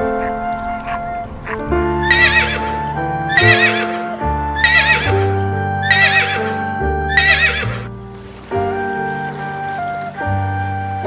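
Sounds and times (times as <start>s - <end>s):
background music with sustained notes: 0.0s - 11.0s
horse whinnying: 2.1s - 4.0s, 4.6s - 7.9s.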